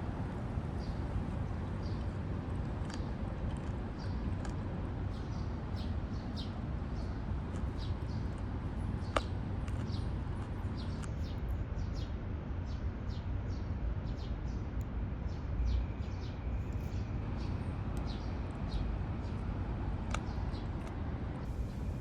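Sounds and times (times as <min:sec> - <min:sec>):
small birds chirping: 0:00.1 - 0:21.8
steady low rumble: 0:14.8 - 0:22.0.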